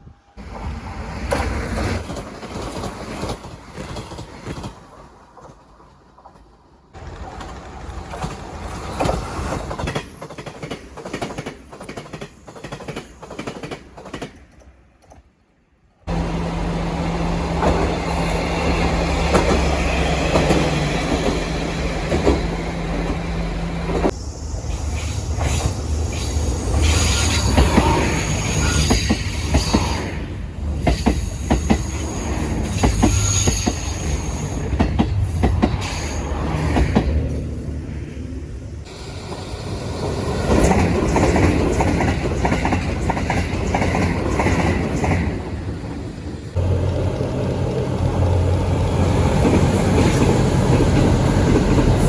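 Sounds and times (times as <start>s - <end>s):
train wheels clacking over rail joints: 7.0s - 15.2s, 17.5s - 23.2s, 30.8s - 37.3s, 40.4s - 45.4s.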